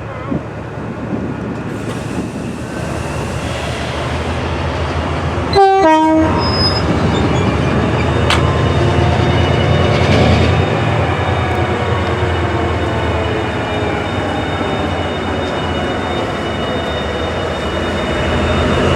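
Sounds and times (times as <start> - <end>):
diesel locomotive engines rumbling: 0.0 - 18.9
two-tone train horn blast: 5.5 - 6.9.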